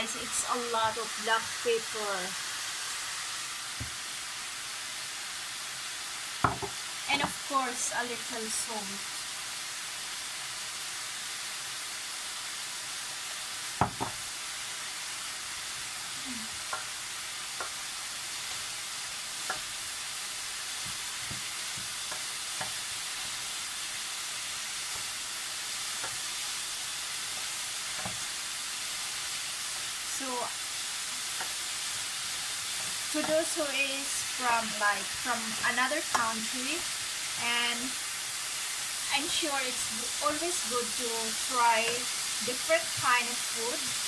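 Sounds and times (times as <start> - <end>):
chicken sizzling in frying pan: 0.0 - 44.0
utensil knocking against pan: 6.4 - 6.8, 13.8 - 14.2.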